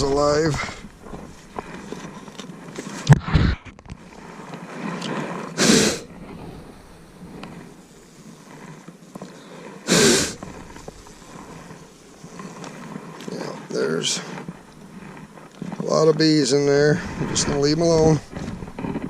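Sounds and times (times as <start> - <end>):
rushing puffs of air: 5.5 - 8.4, 9.8 - 12.3.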